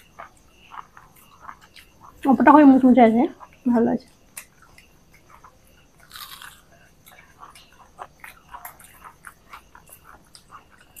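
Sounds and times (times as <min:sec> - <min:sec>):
crispy food crunching: 0:00.0 - 0:11.0.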